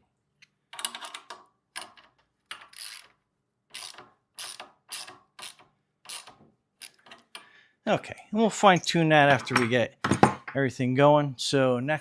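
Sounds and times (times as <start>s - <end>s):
ratchet wrench clicking: 0.8s - 7.2s.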